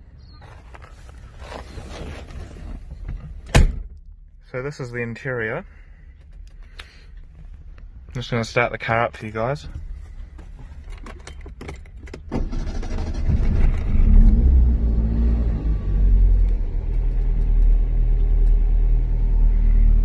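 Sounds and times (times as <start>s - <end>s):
car engine starting and idling: 10.9s - 20.0s.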